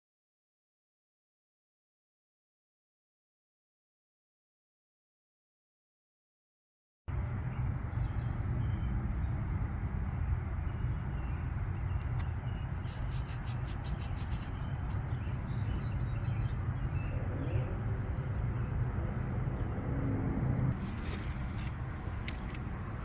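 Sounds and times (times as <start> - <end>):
low engine-like rumble: 7.1 - 23.0.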